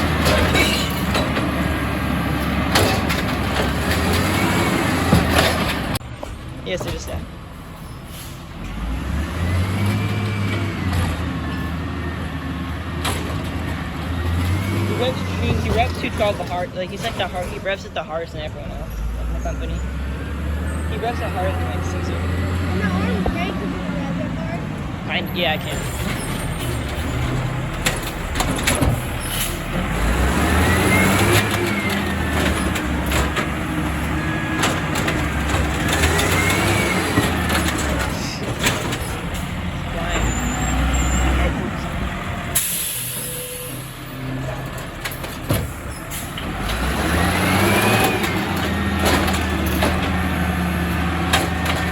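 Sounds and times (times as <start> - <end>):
diesel engine revving: 0.0 - 51.9.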